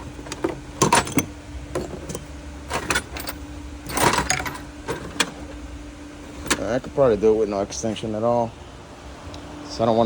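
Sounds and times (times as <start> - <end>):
hand tools clattering in metal toolbox: 0.2 - 5.4.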